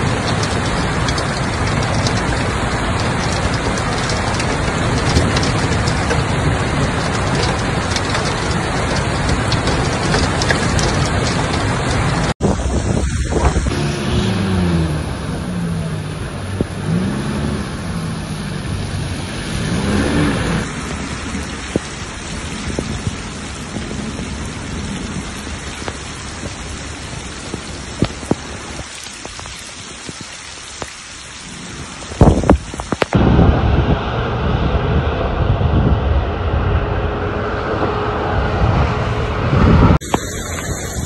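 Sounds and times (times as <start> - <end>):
heavy rain on road: 0.0 - 34.3, 36.3 - 41.0
low wavering hum: 33.2 - 41.0.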